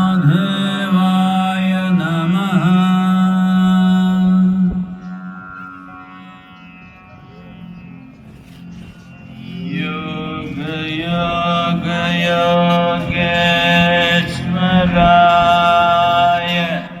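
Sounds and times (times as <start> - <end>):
mantra chanting: 0.0 - 5.6, 9.5 - 17.0
steady low drone: 0.0 - 17.0.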